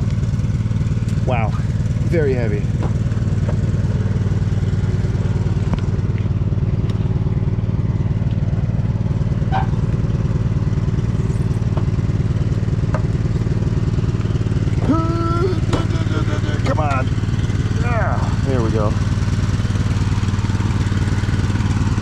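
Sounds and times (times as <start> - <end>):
lawn mower engine idling: 0.0 - 22.0
short voice sound: 14.8 - 16.0.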